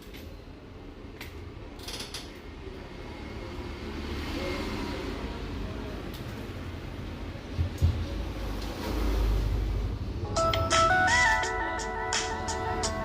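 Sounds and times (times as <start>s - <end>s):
handling clicks and creaks: 1.2s - 2.5s.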